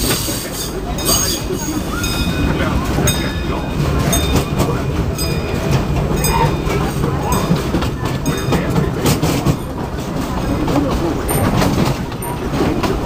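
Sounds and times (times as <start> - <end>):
train rumbling along track: 0.0 - 13.0
wheels clicking over rails: 0.0 - 13.0.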